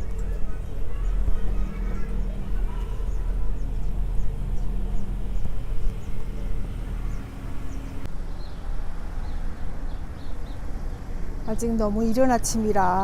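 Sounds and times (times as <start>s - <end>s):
small birds chirping: 0.0s - 8.6s
vehicle engine rumbling: 0.0s - 9.2s.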